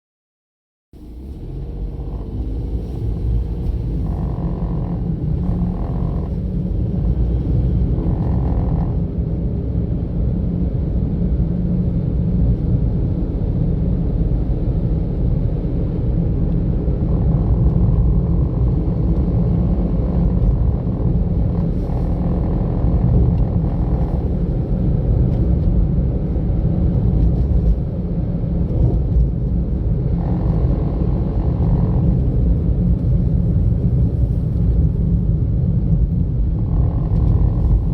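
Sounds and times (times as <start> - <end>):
car engine and tyre rumble: 1.0 - 37.9.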